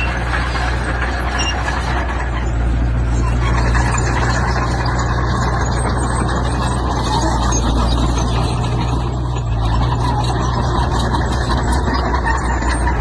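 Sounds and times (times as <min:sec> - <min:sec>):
deep diesel engine hum: 0:00.0 - 0:13.0
rough grating noise: 0:00.0 - 0:13.0.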